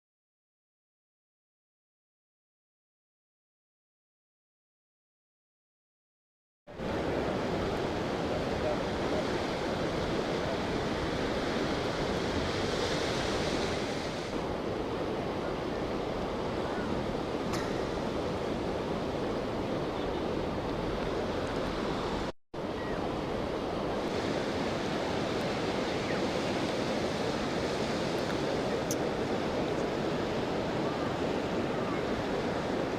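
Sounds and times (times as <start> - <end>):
strong wind over microphone: 6.8 - 32.9.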